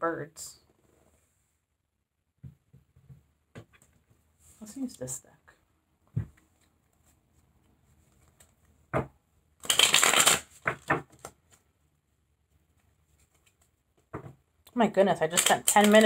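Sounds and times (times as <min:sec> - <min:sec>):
cards shuffling: 0:09.6 - 0:11.6, 0:13.2 - 0:13.7, 0:15.3 - 0:16.0
cards slapping: 0:09.6 - 0:11.6, 0:15.3 - 0:16.0.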